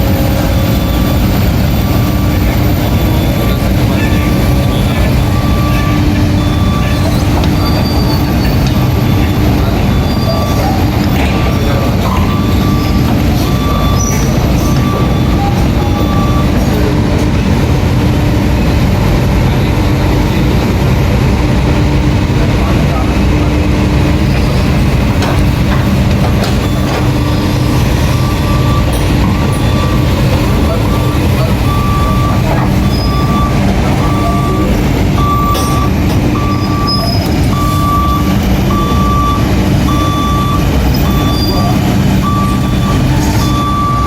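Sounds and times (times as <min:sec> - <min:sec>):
excavator engine rumble: 0:00.0 - 0:44.0
high-pitched squeals: 0:24.1 - 0:44.0.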